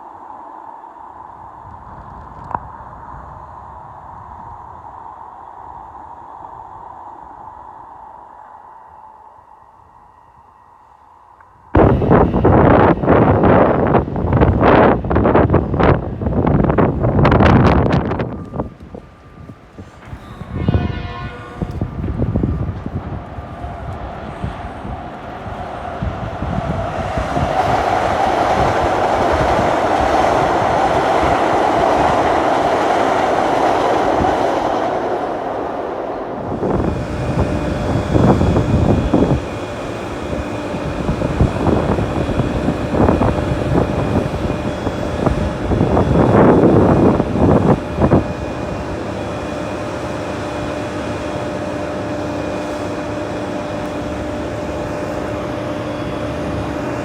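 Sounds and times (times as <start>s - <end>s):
steady hum: 0.0s - 57.0s
train running on rails: 0.0s - 57.0s
faint high steady tones: 4.6s - 14.4s.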